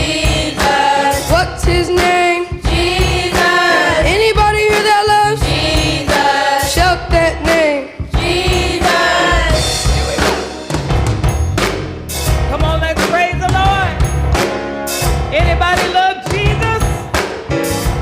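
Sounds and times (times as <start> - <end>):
gospel choir singing: 0.0 - 10.9
live band with drums and bass: 0.0 - 18.0.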